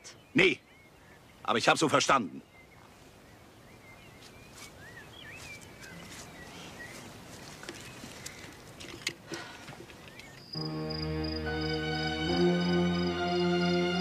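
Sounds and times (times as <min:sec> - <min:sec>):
birds chirping and whistling: 0:00.0 - 0:07.2, 0:10.0 - 0:11.8.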